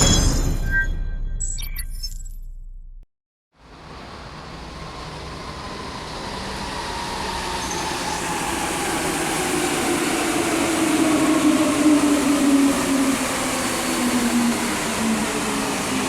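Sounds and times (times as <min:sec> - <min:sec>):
rail running noise: 0:03.6 - 0:16.0
traction motors whining: 0:04.2 - 0:16.0.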